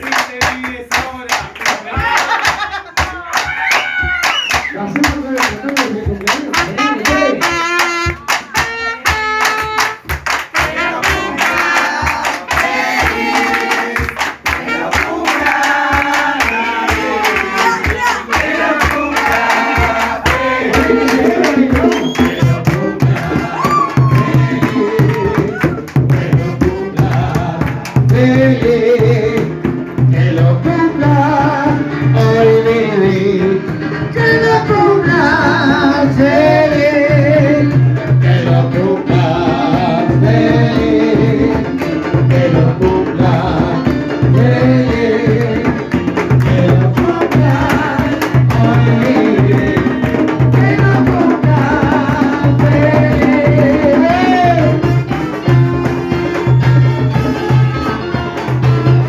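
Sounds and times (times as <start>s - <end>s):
person singing: 0.0s - 9.0s, 10.7s - 55.1s.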